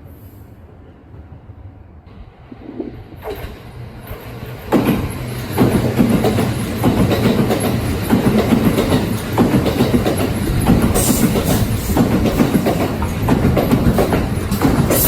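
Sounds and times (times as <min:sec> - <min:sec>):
train rumble: 0:00.0 - 0:15.0
train wheels clattering: 0:03.2 - 0:15.0.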